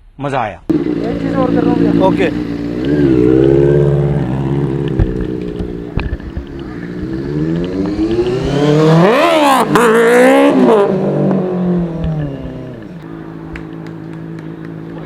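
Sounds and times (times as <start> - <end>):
motorcycle engine revving hard: 0.7 - 13.0.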